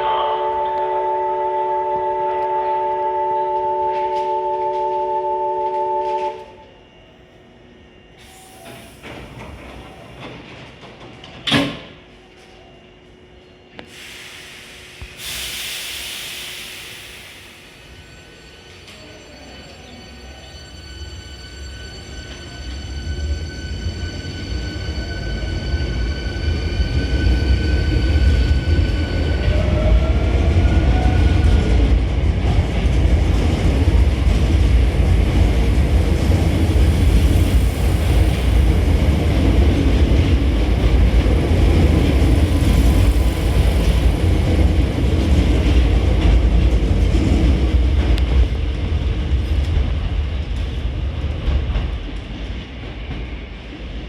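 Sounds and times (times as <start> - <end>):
wheels rumbling on rail: 13.7 - 54.0.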